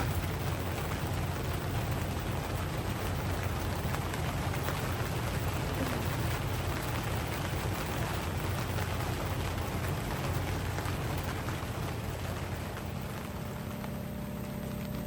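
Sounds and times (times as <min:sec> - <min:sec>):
raindrop ticks: 0:00.0 - 0:15.0
steady rain falling: 0:00.0 - 0:15.0.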